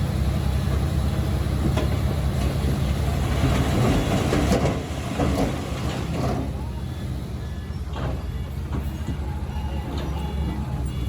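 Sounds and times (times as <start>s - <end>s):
bulldozer diesel engine rumbling: 0.0s - 11.0s.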